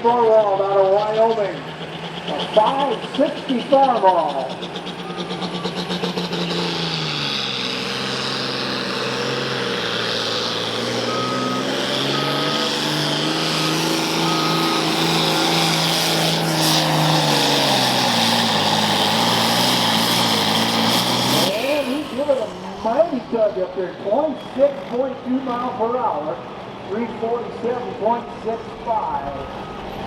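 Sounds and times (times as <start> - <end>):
tractor engine under load: 0.0 - 30.0
reversing alarm beeps: 4.2 - 6.3, 10.8 - 15.8, 29.2 - 30.0.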